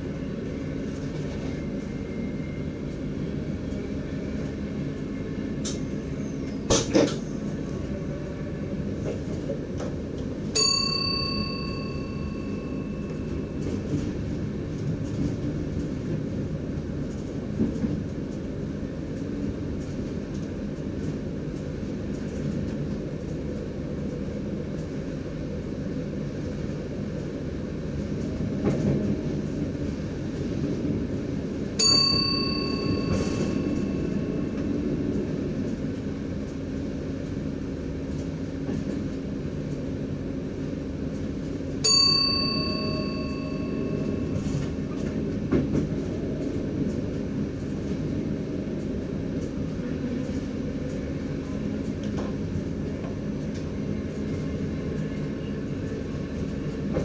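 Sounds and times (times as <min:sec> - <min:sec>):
train low rumble: 0:00.0 - 0:57.0
single chime ringing: 0:10.6 - 0:13.5, 0:31.8 - 0:34.0, 0:41.9 - 0:44.4.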